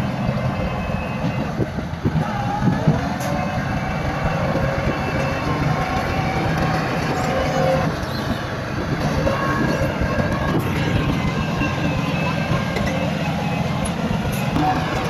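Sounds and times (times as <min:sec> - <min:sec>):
bulldozer diesel engine running: 0:00.0 - 0:15.0
faint whining tones: 0:00.0 - 0:15.0.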